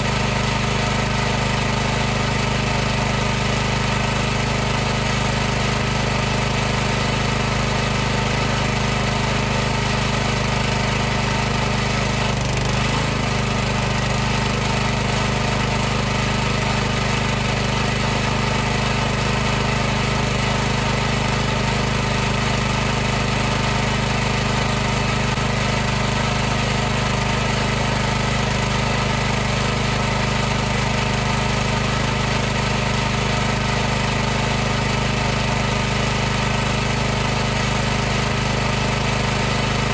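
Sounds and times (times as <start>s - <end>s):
pressure washer motor humming: 0.0s - 39.9s.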